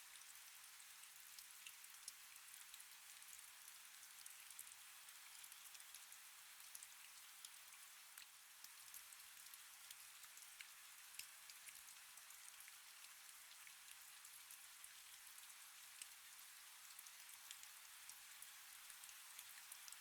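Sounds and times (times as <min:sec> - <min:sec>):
faint steady rain: 0:00.0 - 0:20.0
sharp raindrop ticks: 0:08.2 - 0:12.8, 0:16.9 - 0:20.0.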